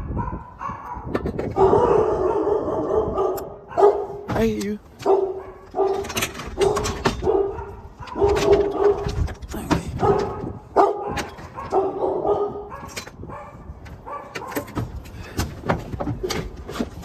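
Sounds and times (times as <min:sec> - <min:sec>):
dog barking: 0:00.0 - 0:04.3, 0:05.0 - 0:09.2, 0:09.9 - 0:14.8.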